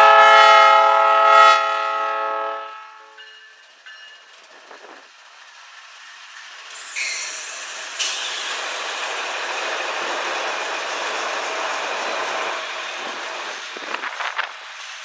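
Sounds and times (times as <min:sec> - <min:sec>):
train wheels clattering over rails: 0:03.2 - 0:15.0.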